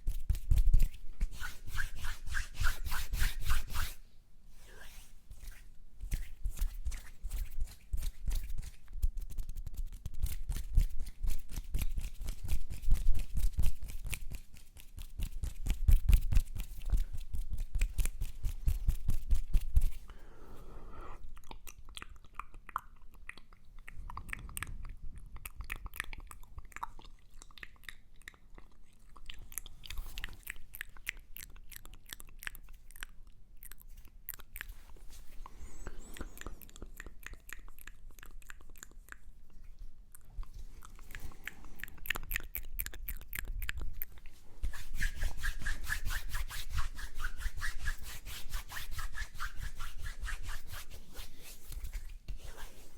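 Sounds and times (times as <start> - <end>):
wet mouth clicks and smacks: 21.2 - 44.4.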